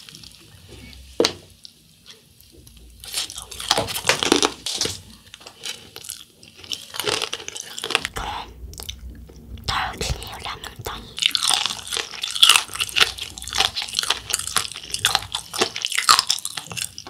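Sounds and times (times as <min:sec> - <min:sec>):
crunchy chewing: 0:02.7 - 0:09.2, 0:11.2 - 0:17.0.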